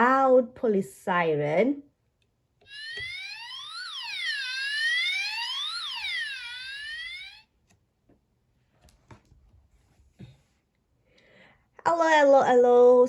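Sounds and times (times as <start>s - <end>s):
police siren wailing: 2.7s - 7.5s.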